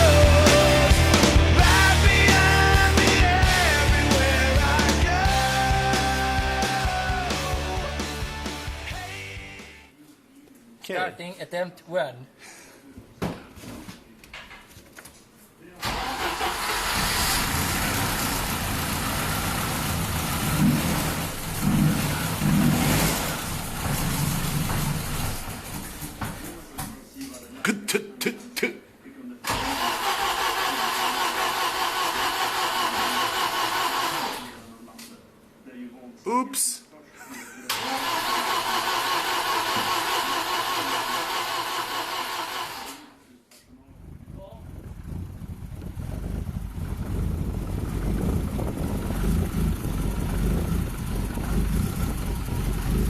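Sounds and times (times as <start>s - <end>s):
car engine revving: 0.0s - 8.7s, 15.9s - 26.2s, 43.9s - 53.0s.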